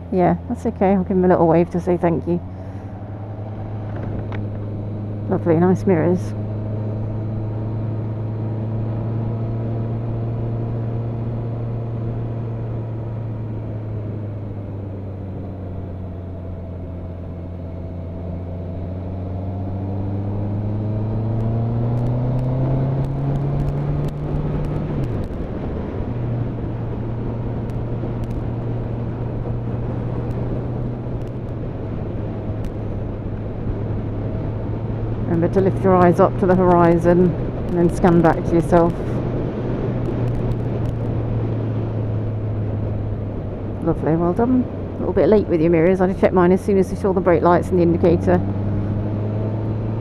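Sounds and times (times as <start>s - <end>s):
motorcycle engine running: 0.0s - 50.0s
wind noise: 0.8s - 9.5s, 18.8s - 50.0s.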